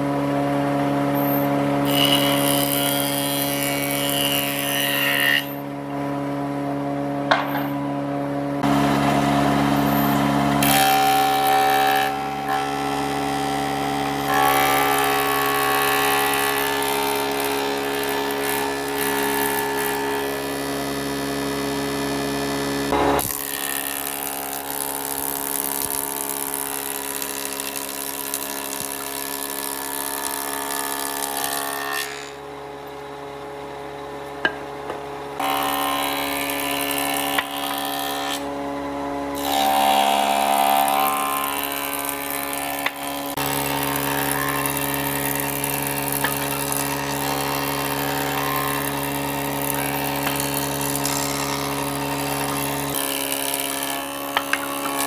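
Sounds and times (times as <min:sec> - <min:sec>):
power tool motor hum: 0:08.6 - 0:32.3, 0:39.4 - 0:55.0
wood cutting hiss: 0:39.4 - 0:55.0.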